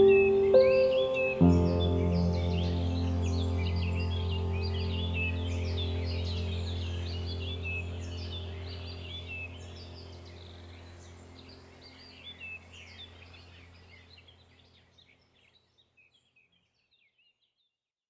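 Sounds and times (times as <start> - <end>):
low steady drone: 0.0 - 13.9
small birds chirping: 0.0 - 17.8.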